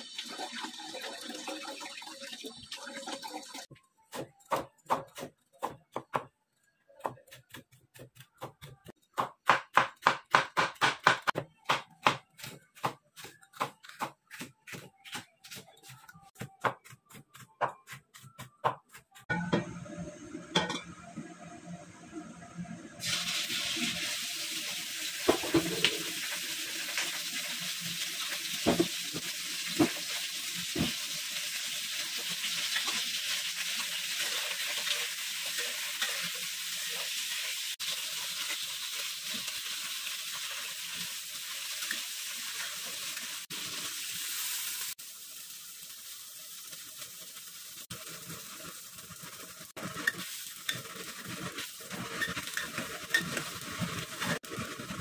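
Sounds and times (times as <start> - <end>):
meat sizzling in hot oil: 0.0 - 3.6, 23.0 - 55.0.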